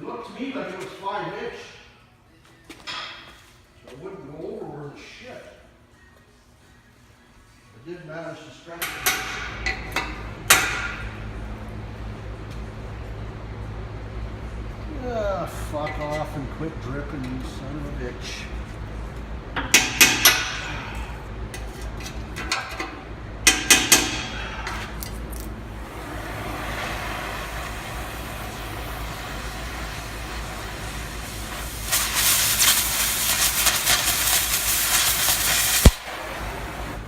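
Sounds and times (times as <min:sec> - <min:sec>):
loud hiss with crackle: 0:25.9 - 0:37.0.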